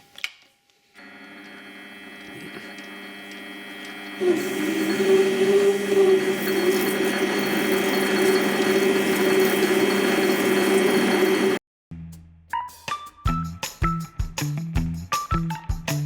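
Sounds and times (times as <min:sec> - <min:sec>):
lathe motor hum: 0:01.0 - 0:11.6
metal lathe cutting: 0:01.0 - 0:11.6.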